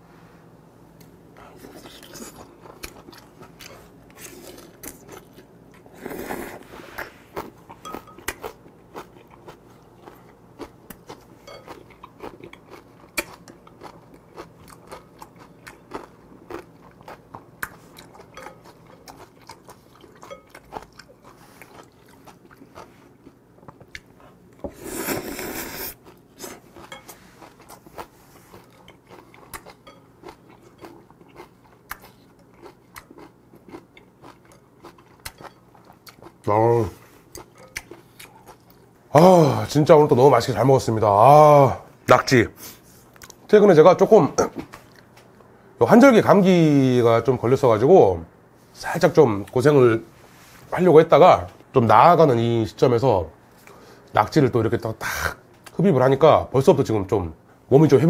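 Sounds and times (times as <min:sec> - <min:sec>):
wet chewing with crunching: 0:01.0 - 0:38.9.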